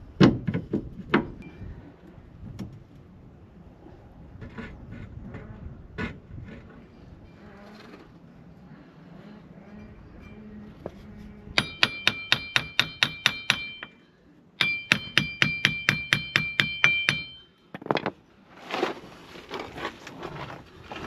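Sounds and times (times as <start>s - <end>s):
hammer striking rusted metal: 11.6s - 17.8s.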